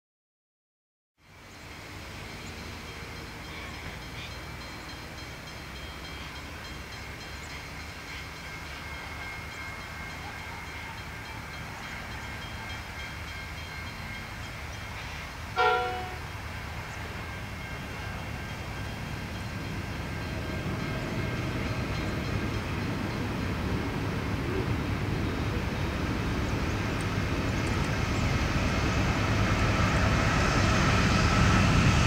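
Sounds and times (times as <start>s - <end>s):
distant diesel locomotives rumbling: 1.2s - 32.0s
train horn blast: 15.0s - 16.4s.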